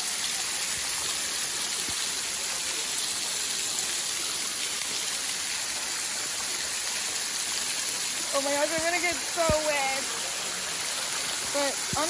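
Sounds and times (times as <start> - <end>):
waterfall rushing and splashing: 0.0 - 12.0.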